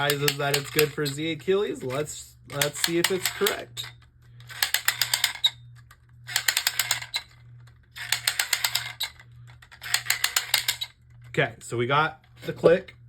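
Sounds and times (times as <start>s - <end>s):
toy launcher ratcheting clicks: 0.0s - 11.0s.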